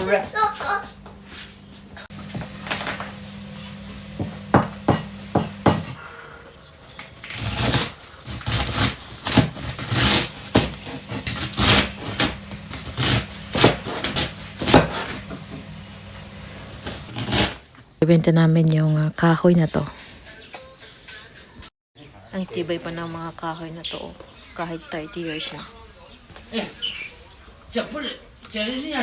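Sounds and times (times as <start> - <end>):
dishes scraping: 2.1 - 6.0
dishes and utensils clattering: 4.2 - 6.0.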